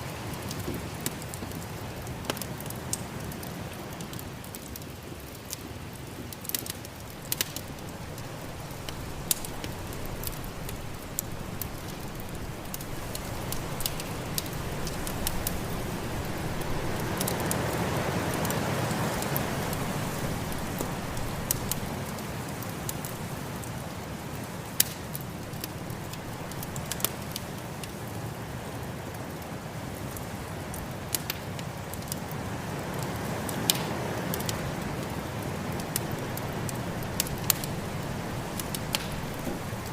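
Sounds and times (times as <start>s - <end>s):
wood fire crackling: 0.0s - 39.9s
snowstorm wind rushing: 7.6s - 22.2s.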